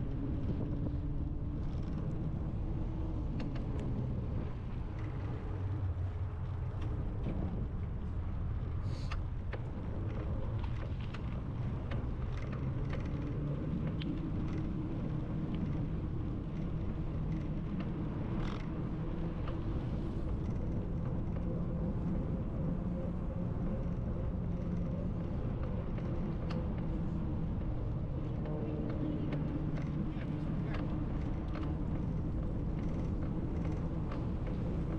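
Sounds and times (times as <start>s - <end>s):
small clicks and ticks: 0.0s - 34.9s
bicycle rolling on pavement: 9.5s - 20.5s.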